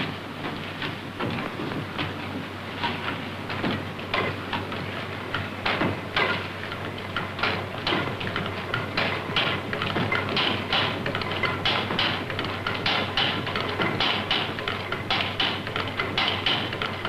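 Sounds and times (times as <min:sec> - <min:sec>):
engine clattering with clicks: 0:00.0 - 0:17.0
steady low hum: 0:00.0 - 0:17.0.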